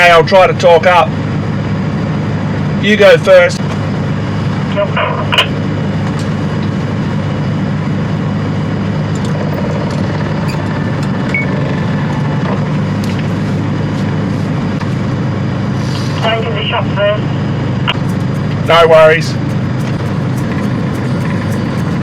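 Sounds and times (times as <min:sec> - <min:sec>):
van engine running: 0:17.9 - 0:22.0.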